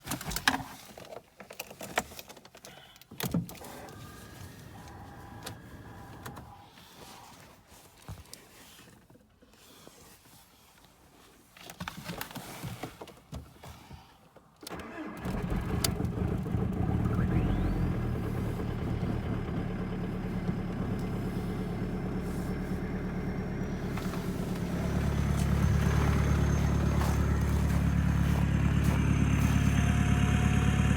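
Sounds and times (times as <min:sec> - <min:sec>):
diesel engine cranking and idling: 0:03.6 - 0:06.6, 0:14.7 - 0:30.9.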